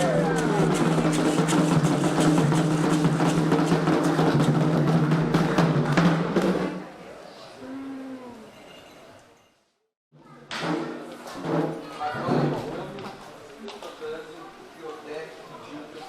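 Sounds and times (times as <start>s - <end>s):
faint voices: 0.0s - 1.8s, 6.6s - 9.4s
fast ceremonial drumming: 0.0s - 6.8s.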